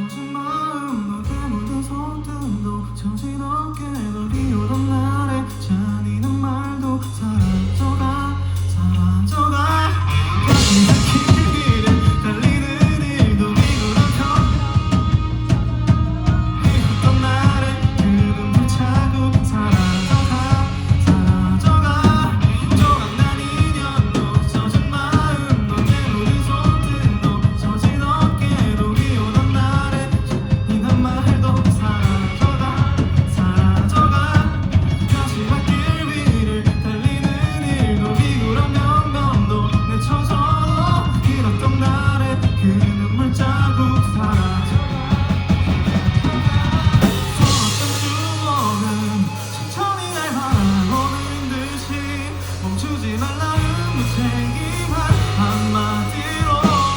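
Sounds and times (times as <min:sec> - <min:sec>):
live rock band playing: 0:00.0 - 0:56.9
person singing: 0:00.0 - 0:56.9.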